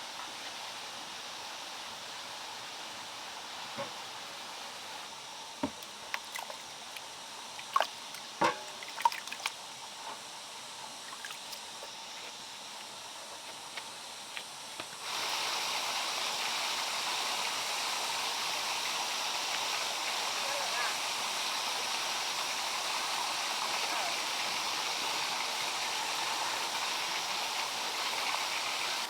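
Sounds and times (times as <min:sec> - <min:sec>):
water trickling and dripping: 0:05.6 - 0:10.0
rush of flowing water: 0:15.0 - 0:29.0.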